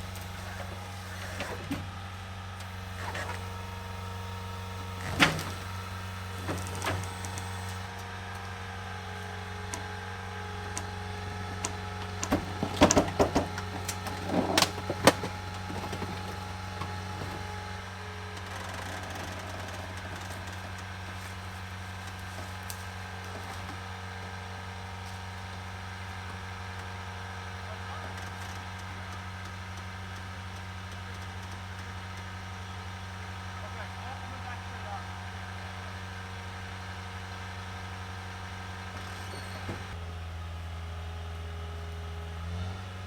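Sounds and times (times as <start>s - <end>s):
motor humming: 0.0s - 29.5s.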